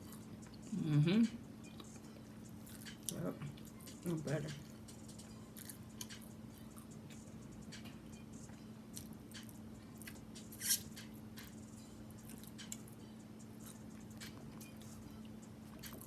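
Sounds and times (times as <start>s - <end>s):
faint steady hum: 0.0s - 16.0s
person chewing wetly: 2.6s - 3.7s, 5.5s - 6.9s.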